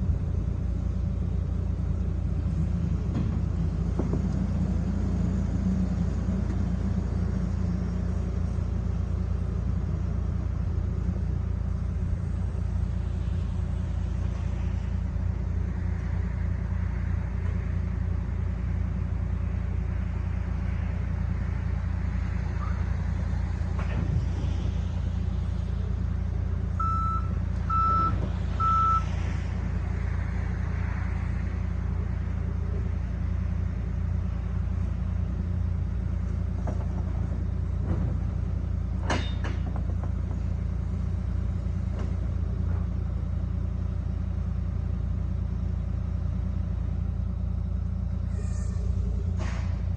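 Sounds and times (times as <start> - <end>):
diesel engine running: 0.0 - 49.9
reversing alarm beeps: 26.8 - 29.1.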